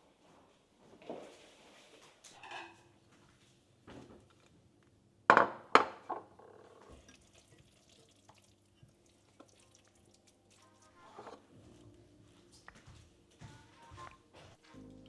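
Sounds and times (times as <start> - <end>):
kitchenware clinking and knocking: 5.3 - 7.2.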